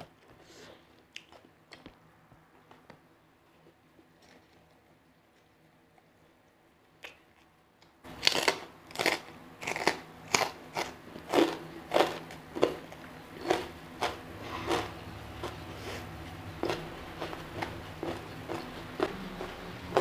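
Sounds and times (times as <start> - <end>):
crunchy food chewing: 8.1 - 20.0.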